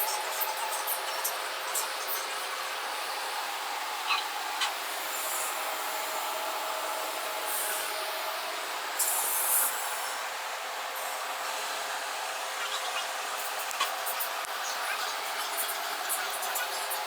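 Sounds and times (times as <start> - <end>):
steady whooshing shop noise: 0.0 - 17.0.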